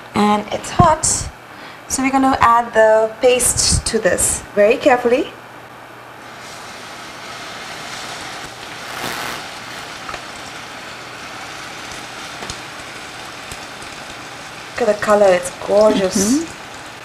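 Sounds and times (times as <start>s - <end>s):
curry paste sizzling in oil: 6.2s - 17.0s.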